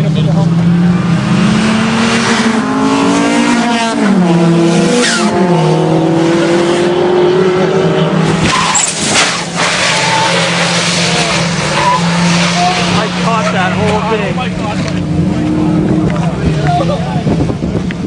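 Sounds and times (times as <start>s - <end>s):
car engines revving: 0.0s - 18.0s
tyres skidding and squealing: 4.8s - 5.7s, 7.8s - 17.3s.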